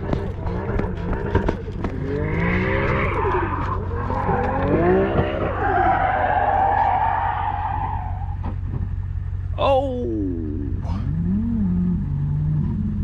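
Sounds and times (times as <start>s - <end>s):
tires squealing: 0.0s - 8.9s
car engine revving: 0.0s - 13.0s.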